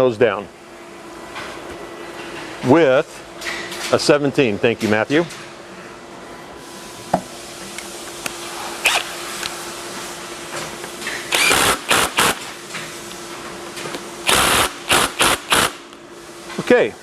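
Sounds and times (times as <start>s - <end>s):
ratchet wrench clicking: 11.4s - 12.4s.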